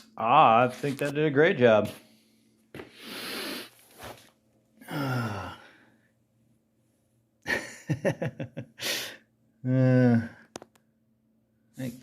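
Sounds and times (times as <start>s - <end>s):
man breathing and sighing: 4.8s - 6.1s, 8.8s - 10.6s.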